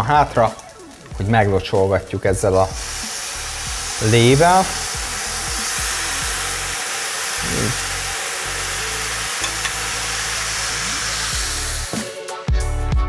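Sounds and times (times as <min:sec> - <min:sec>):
stir-fry sizzling in a hot pan: 0:02.4 - 0:12.4
sauce being poured and spooned: 0:04.8 - 0:11.9.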